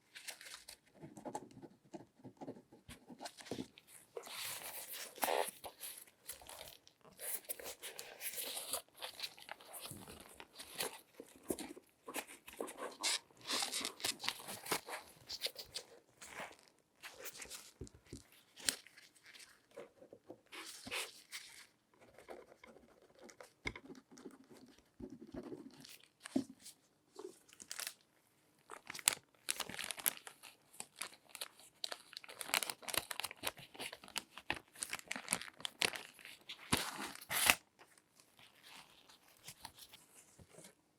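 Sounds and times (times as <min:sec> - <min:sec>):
latex gloves crinkling: 0:03.3 - 0:19.8, 0:25.8 - 0:40.7.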